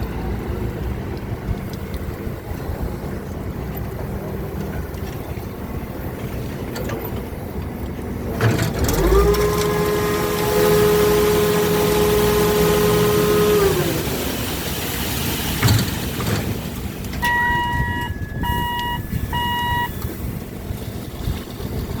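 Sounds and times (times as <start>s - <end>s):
construction machinery engine rumble: 0.0s - 22.0s
reversing alarm beeps: 17.2s - 20.1s.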